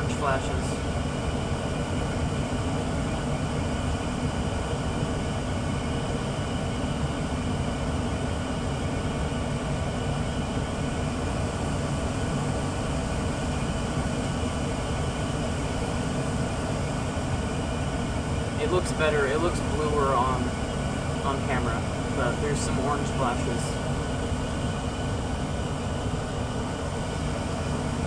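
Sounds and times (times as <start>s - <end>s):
gas furnace rumbling: 0.0s - 5.8s, 14.4s - 28.0s.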